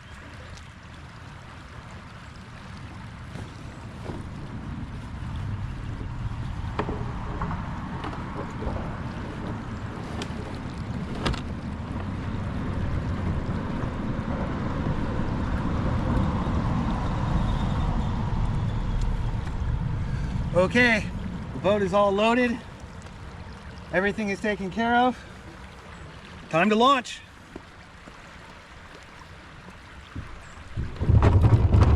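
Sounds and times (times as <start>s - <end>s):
wind noise on microphone: 3.2s - 21.7s, 30.1s - 31.9s
sharp knocks: 6.7s - 9.6s.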